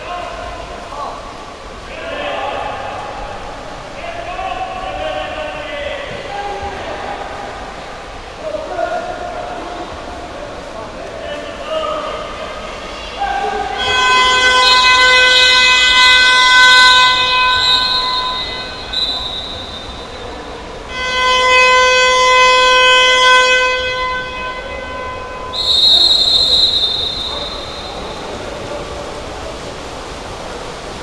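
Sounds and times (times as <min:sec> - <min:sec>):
horn blasts: 0:12.5 - 0:29.0.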